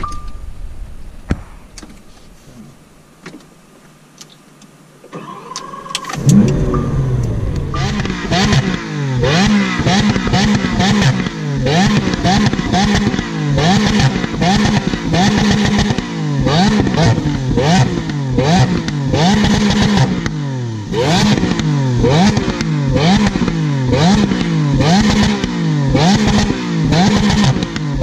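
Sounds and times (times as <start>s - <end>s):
starter motor whine: 5.0s - 8.6s
engine revving: 5.1s - 28.0s.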